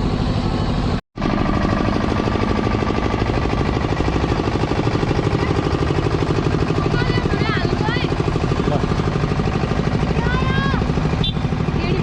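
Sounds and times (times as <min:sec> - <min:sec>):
construction machinery pulsing: 0:00.0 - 0:12.0.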